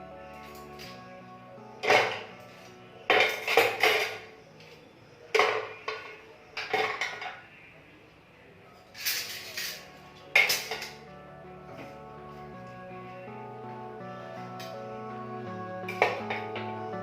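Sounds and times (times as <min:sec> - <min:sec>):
dishes and utensils clattering: 0:01.8 - 0:07.5, 0:08.8 - 0:11.1, 0:15.9 - 0:16.7.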